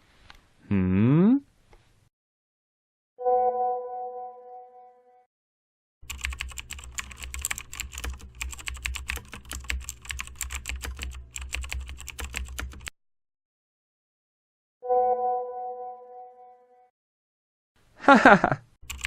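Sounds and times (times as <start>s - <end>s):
keyboard typing clicks: 6.1s - 12.9s.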